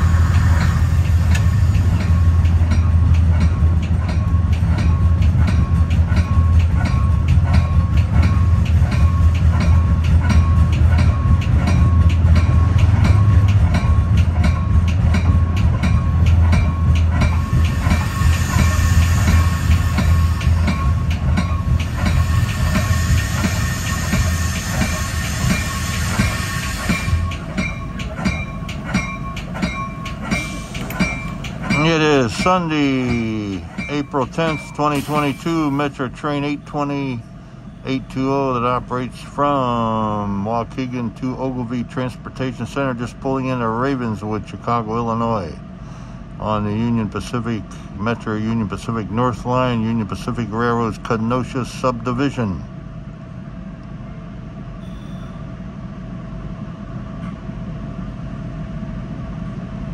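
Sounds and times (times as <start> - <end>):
train running on rails: 0.0 - 59.9
wheels clacking over rail joints: 0.4 - 36.0.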